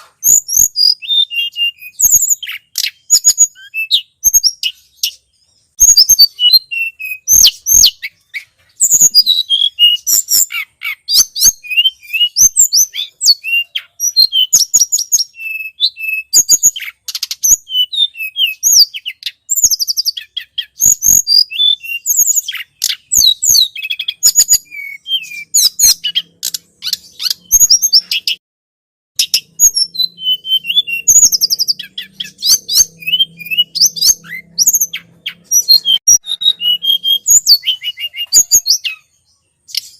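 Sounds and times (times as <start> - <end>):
songbird chirping and trilling: 0.0 - 28.4, 29.2 - 39.9.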